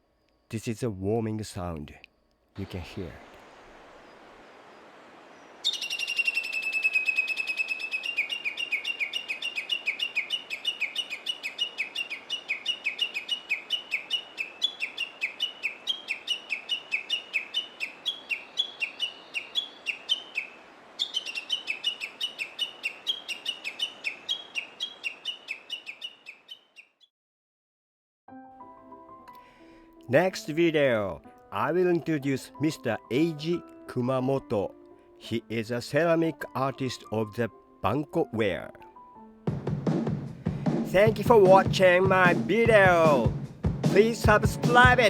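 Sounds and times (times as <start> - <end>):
bird warning call: 2.6 - 27.1.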